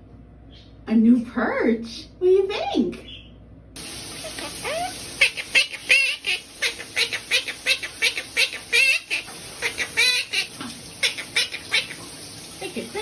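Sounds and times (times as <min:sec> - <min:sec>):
pet bird chirping: 0:03.0 - 0:03.4.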